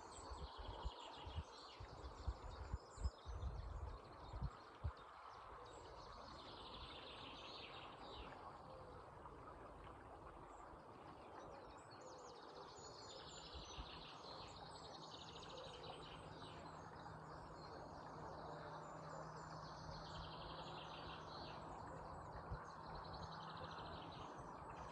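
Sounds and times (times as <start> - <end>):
faint low hum: 0.0 - 24.9
birds singing: 11.6 - 24.9.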